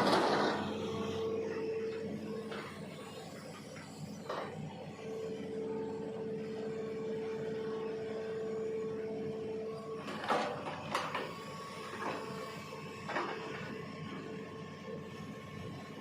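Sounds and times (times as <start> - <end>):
hydraulic whine: 0.0 - 14.6
excavator diesel engine running: 0.0 - 16.0.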